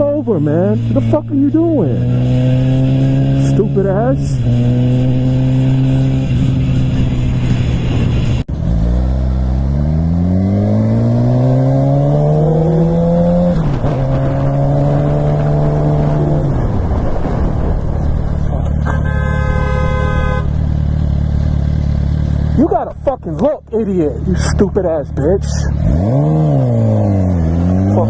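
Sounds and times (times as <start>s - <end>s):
motorcycle engine revving: 0.0s - 16.9s, 18.8s - 28.0s
wind noise: 4.4s - 8.4s, 12.3s - 20.6s
steady horn-like tone: 18.9s - 20.6s.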